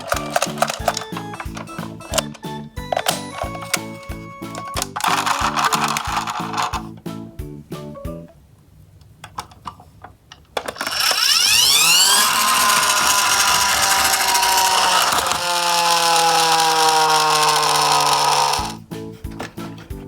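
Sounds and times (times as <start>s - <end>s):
toy truck whirring: 0.0s - 6.8s, 10.6s - 18.8s.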